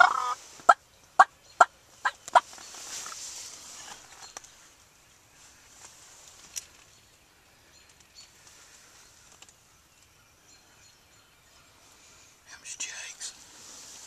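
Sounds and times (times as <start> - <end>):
small clicks and rustles: 2.4 - 4.6, 5.8 - 7.0, 7.8 - 10.1.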